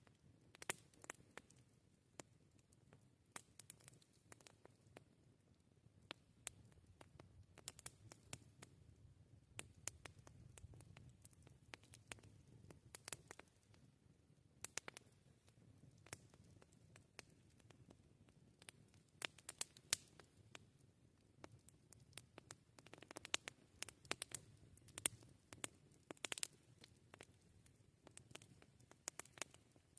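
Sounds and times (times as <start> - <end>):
low rumble of burning fire: 0.0 - 29.9
wood fire crackling: 0.0 - 29.9.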